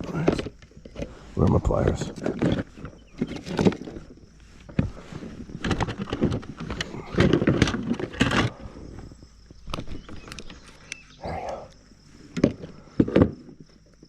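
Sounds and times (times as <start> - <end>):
handling knocks and clatter: 0.0 - 10.9.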